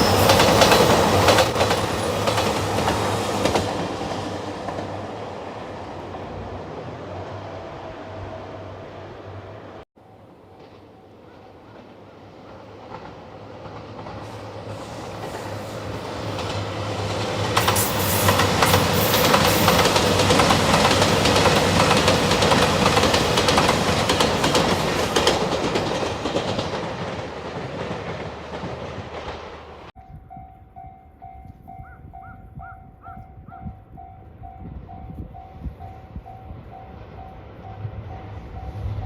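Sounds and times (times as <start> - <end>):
train wheels clattering over rail joints: 0.0 - 4.9, 11.7 - 29.9.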